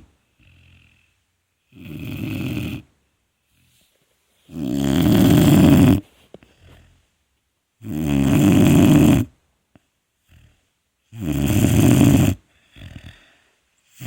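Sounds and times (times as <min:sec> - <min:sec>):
puppy snoring: 0:00.0 - 0:07.1, 0:07.8 - 0:09.4, 0:10.2 - 0:14.0
faint breath: 0:12.4 - 0:14.0.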